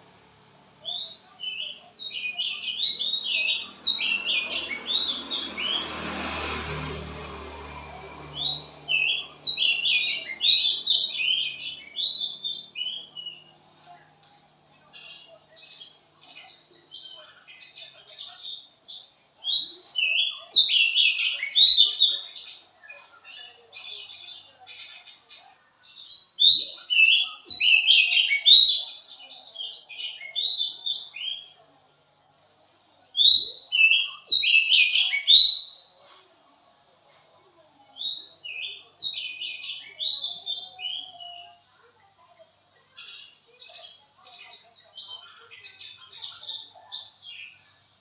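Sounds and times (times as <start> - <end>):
bird singing whistled phrases: 0.8 - 5.8, 8.4 - 13.5, 19.4 - 22.4, 26.4 - 31.6, 33.2 - 35.8, 38.0 - 41.6.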